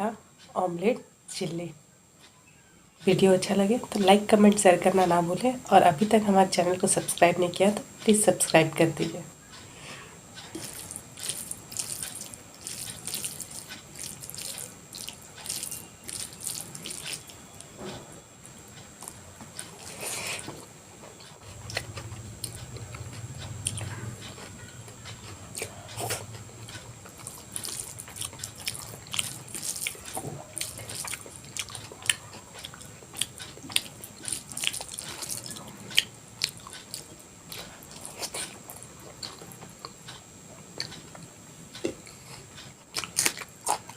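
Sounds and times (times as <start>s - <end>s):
chewing with wet mouth clicks: 10.4s - 17.7s, 21.2s - 40.2s, 40.8s - 43.9s.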